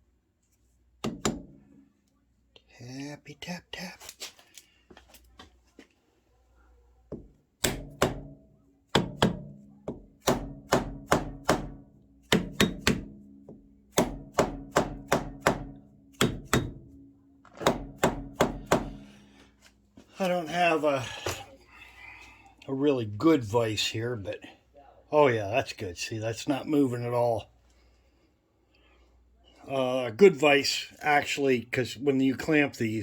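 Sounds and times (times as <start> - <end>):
hammer tapping on steel: 1.0 - 1.6, 7.1 - 17.0, 17.6 - 19.2.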